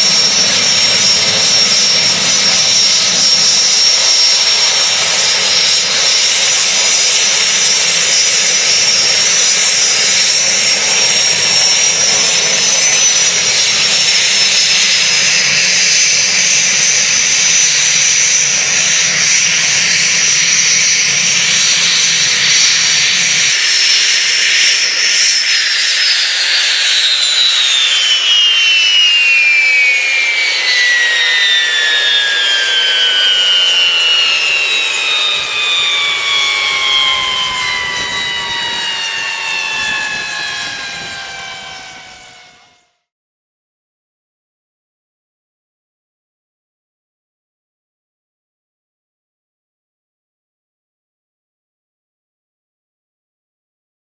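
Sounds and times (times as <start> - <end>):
broad rush of noise: 0.0 - 42.6
helicopter turbine whining: 0.0 - 43.1.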